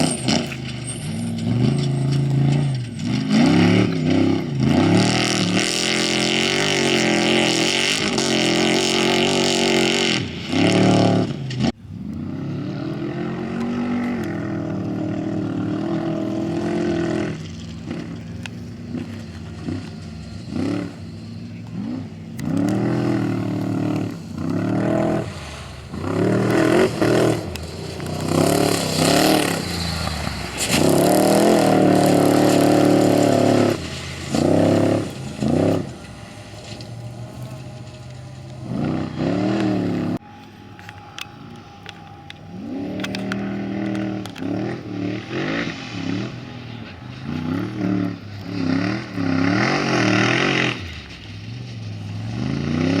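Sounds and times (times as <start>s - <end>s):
race vehicle engines passing: 0.0s - 53.0s
engine revving bursts: 1.3s - 40.2s.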